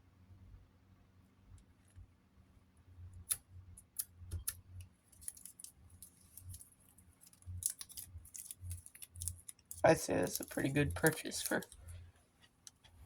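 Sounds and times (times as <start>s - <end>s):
scratching sticker paper: 5.2s - 12.0s.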